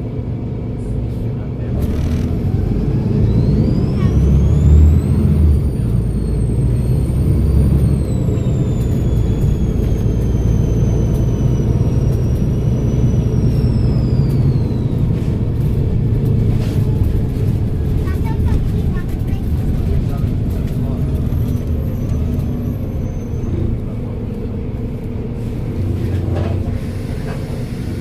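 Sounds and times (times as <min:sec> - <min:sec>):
bus engine droning: 0:00.0 - 0:28.0
turbocharger whistling: 0:01.9 - 0:16.0, 0:19.5 - 0:24.0.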